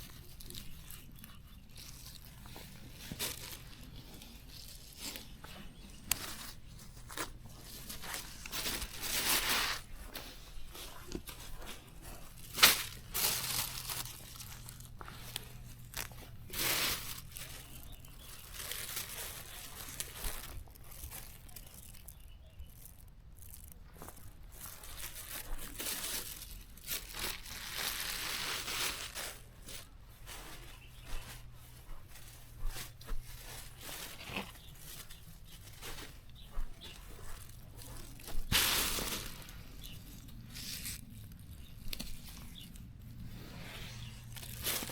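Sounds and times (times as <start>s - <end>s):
rustling and tearing of plants: 0.0s - 44.9s
plant stems snapping: 12.5s - 17.5s, 37.2s - 41.0s.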